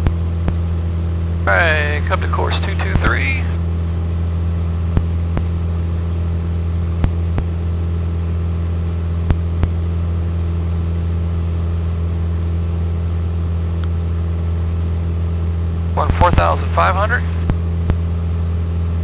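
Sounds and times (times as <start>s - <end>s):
low steady hum: 0.0s - 19.0s
propeller plane engine droning: 0.0s - 19.0s.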